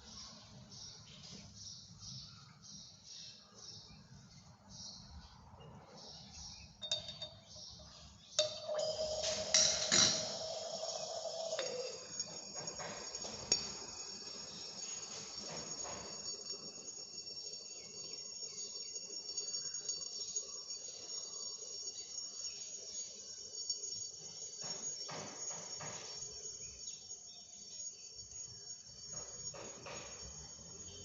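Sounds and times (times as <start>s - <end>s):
high-pitched insect chirring: 6.6s - 31.0s.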